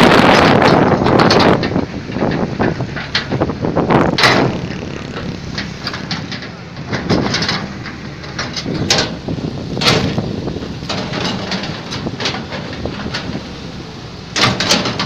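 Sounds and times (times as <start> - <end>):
excavator engine hum: 0.0 - 15.0
metallic knocks and clanks: 0.3 - 15.0.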